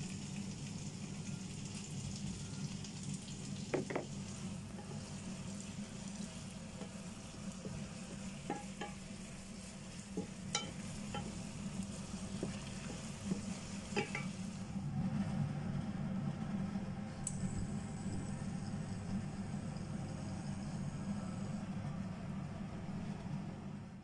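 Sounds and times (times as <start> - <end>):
chicken frying with sizzle: 0.0 - 14.7
utensil tapping a pan: 3.7 - 4.1, 7.6 - 9.2, 10.1 - 11.5, 12.3 - 14.3.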